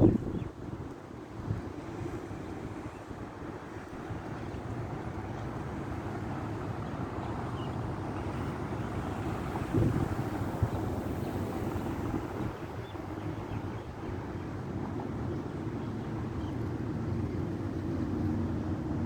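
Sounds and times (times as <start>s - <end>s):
wind buffeting microphone: 0.0s - 4.3s, 8.6s - 14.7s.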